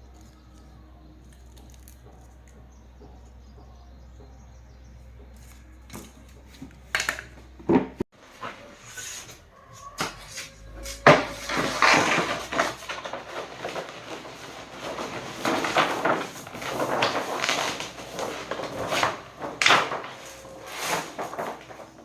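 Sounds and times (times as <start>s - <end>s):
hard objects knocking and clattering: 11.0s - 22.0s.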